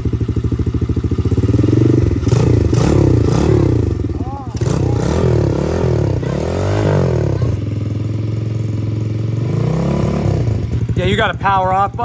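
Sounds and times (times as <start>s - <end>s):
dirt bike engine revving: 0.5s - 12.0s.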